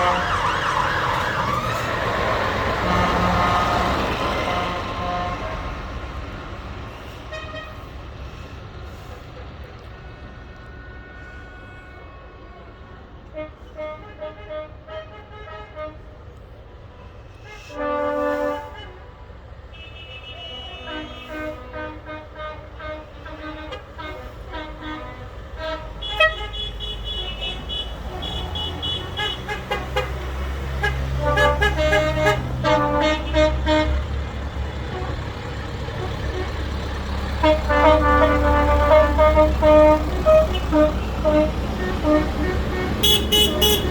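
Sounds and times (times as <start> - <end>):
horn toot: 0.0 - 6.1, 19.8 - 34.2, 37.3 - 43.9
tractor engines rumbling: 0.0 - 43.9.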